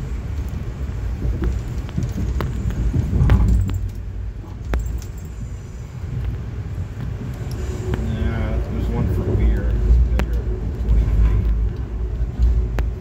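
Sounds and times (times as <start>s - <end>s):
train rumbling from inside coach: 0.0s - 13.0s
sharp clanks and clicks: 1.3s - 5.4s.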